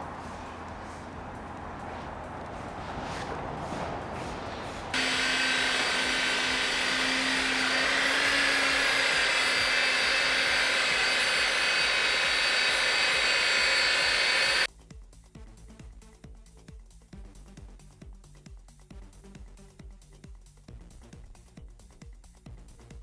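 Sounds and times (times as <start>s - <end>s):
workshop machine hissing and humming: 4.9s - 14.7s.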